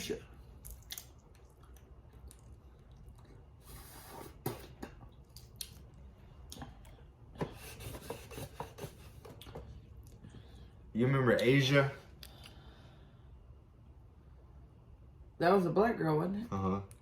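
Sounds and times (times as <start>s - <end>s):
wet squishes: 0.5s - 3.6s.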